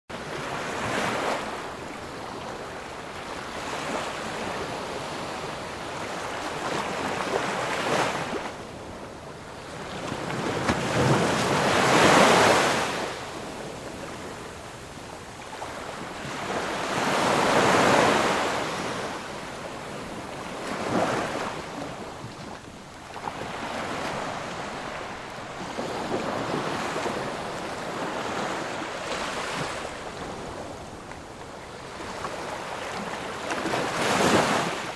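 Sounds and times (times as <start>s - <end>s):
ocean waves breaking: 0.1s - 34.9s.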